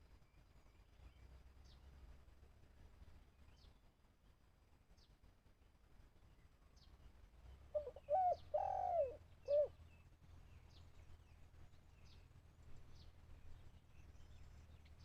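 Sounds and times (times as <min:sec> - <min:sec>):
small birds chirping: 0:06.4 - 0:15.0
dove cooing: 0:07.7 - 0:09.8.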